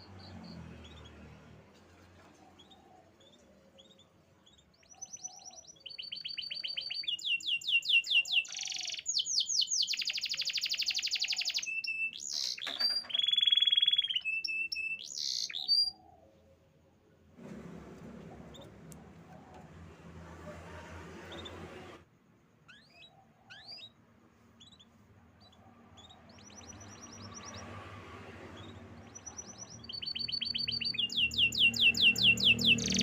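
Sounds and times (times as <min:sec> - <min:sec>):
canary singing trills: 0:02.5 - 0:16.3, 0:22.6 - 0:27.7, 0:28.3 - 0:33.0.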